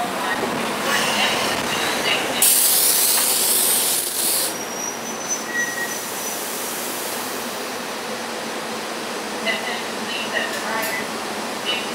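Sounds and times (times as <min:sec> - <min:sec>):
train rolling rumble: 0:00.0 - 0:11.9
loud high air hiss: 0:02.4 - 0:04.6
faint high metallic squeal: 0:04.6 - 0:06.0.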